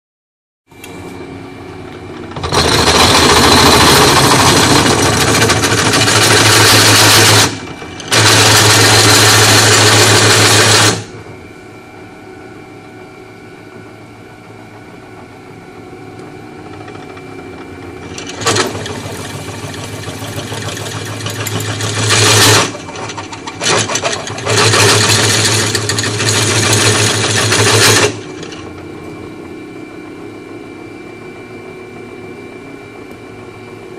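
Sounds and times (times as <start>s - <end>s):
power drill drilling: 2.3s - 11.1s, 20.3s - 28.6s.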